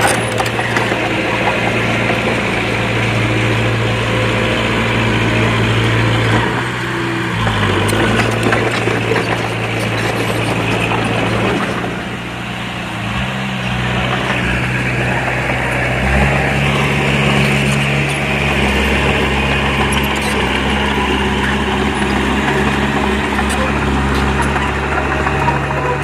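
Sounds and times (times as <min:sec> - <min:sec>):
diesel engine of heavy machinery: 0:00.0 - 0:26.0.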